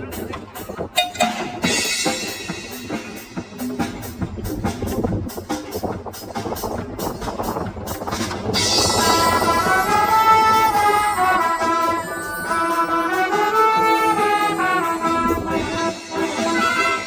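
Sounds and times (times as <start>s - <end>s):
brass band playing: 8.5s - 17.0s.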